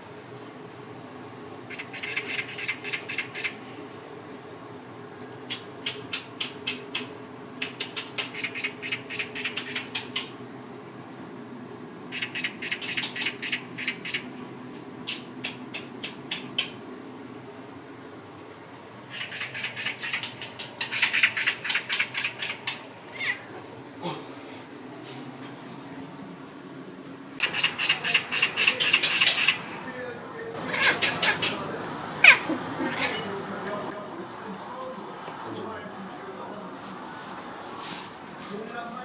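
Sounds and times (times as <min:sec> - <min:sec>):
cat chattering jaw clicks: 0:05.5 - 0:10.2, 0:15.1 - 0:16.8, 0:19.2 - 0:22.8, 0:27.4 - 0:29.9, 0:30.6 - 0:33.7
steady low hum: 0:27.4 - 0:39.0.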